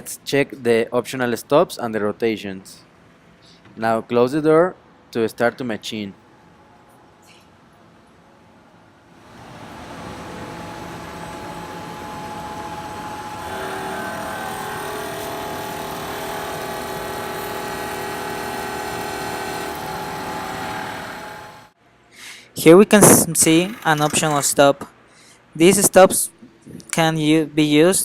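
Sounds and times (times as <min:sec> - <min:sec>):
milling machine running: 0:11.0 - 0:21.7, 0:23.3 - 0:24.6.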